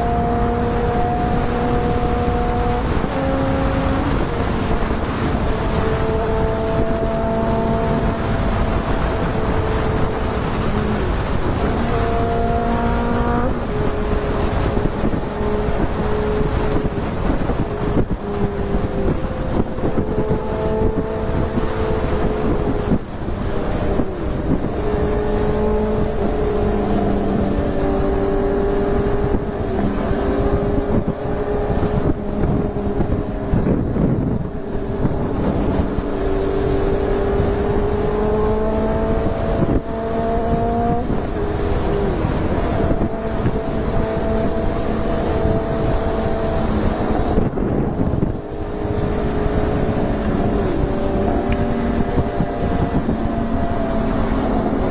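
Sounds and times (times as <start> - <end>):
motorcycle engine running: 0.0 - 54.9
wind rushing over microphone: 0.0 - 54.9.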